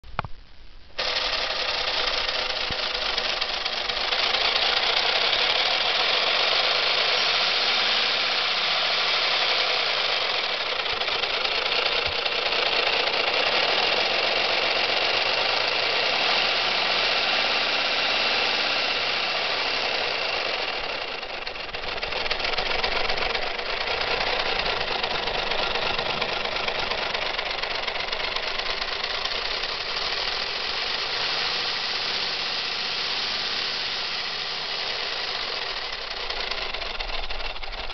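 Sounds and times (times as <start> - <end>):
pistons and valves rattling: 1.0 - 37.9
hiss of compressed air: 26.6 - 36.6.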